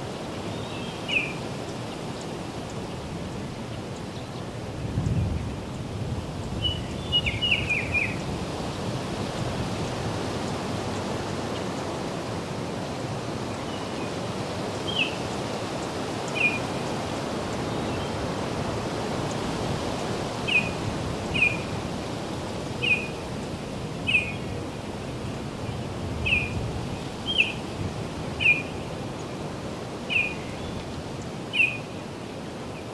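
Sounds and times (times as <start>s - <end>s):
wind in foliage: 0.0s - 32.9s.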